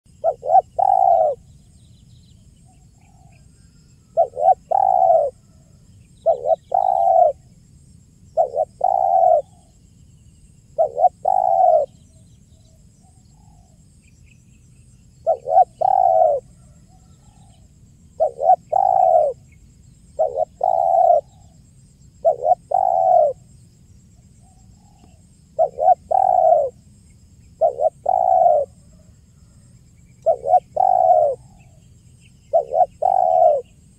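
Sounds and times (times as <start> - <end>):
dove cooing: 0.1 - 1.5, 4.1 - 5.5, 6.2 - 7.5, 8.4 - 9.7, 10.7 - 12.0, 15.2 - 17.6, 18.2 - 19.4, 20.2 - 21.6, 22.2 - 23.5, 24.4 - 26.8, 27.6 - 29.1, 30.2 - 31.8, 32.5 - 33.8.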